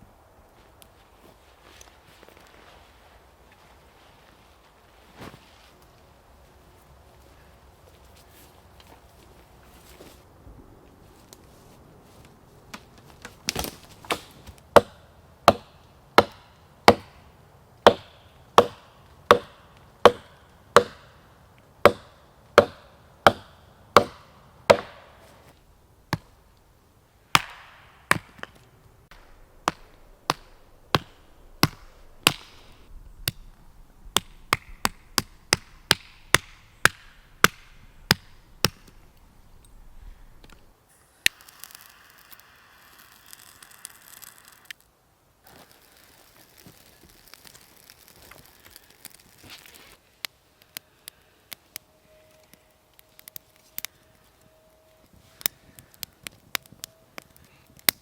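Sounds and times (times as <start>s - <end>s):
wood chopping knocks: 21.9s - 25.0s.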